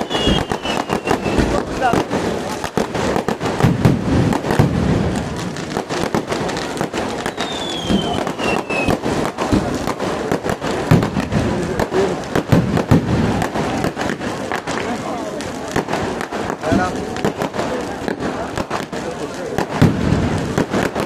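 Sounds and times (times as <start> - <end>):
falling firework whistle: 0.0 - 1.9, 6.9 - 9.6
firecracker bangs: 0.0 - 21.0.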